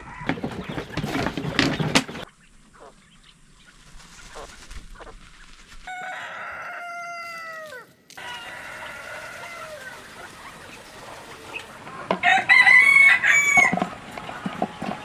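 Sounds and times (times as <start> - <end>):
chickens clucking: 0.0 - 15.0
rooster crowing: 5.9 - 15.0.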